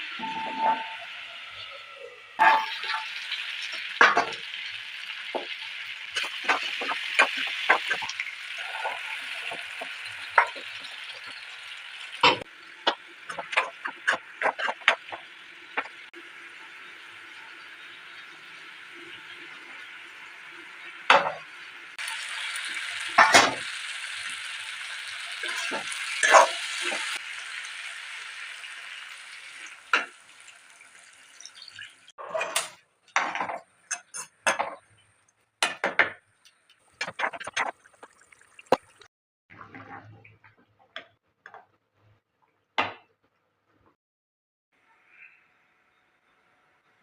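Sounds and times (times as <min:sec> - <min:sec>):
metal utensils and pots clinking: 0:00.0 - 0:01.8, 0:02.4 - 0:16.0, 0:21.0 - 0:21.5, 0:22.4 - 0:23.7, 0:25.2 - 0:27.2, 0:31.4 - 0:38.8.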